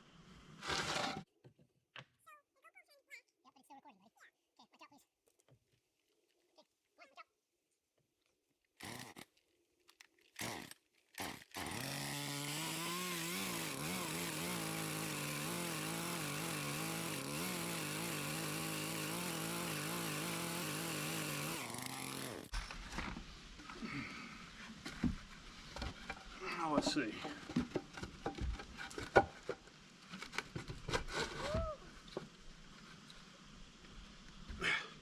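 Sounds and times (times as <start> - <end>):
chainsaw cutting a board: 0.6 - 1.2, 8.8 - 9.3, 10.4 - 22.5.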